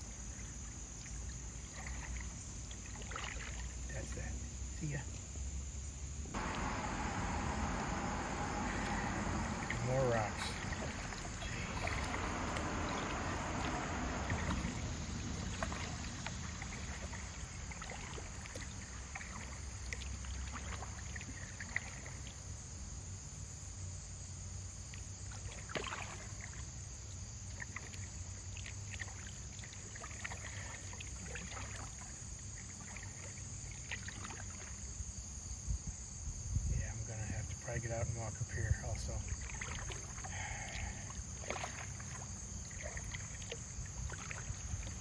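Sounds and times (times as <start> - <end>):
paddle dipping and splashing: 0.0 - 4.3, 6.3 - 23.3, 24.9 - 36.2, 38.8 - 45.0
high insect drone: 0.0 - 21.8, 32.0 - 45.0
water drips and knocks: 6.4 - 21.0, 39.4 - 45.0.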